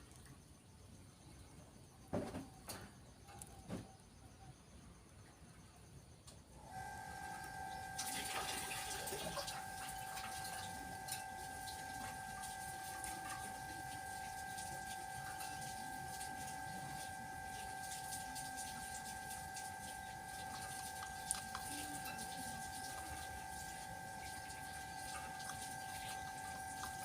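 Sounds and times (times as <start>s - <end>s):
steady high hum: 2.7s - 27.0s
gently running water: 6.8s - 27.0s.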